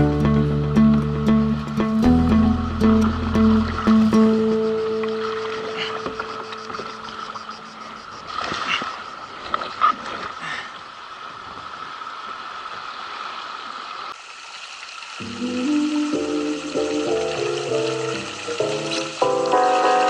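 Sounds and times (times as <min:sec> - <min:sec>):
background music: 0:00.0 - 0:07.1, 0:15.2 - 0:20.0
river water running: 0:00.0 - 0:20.0
water splashes: 0:00.0 - 0:20.0.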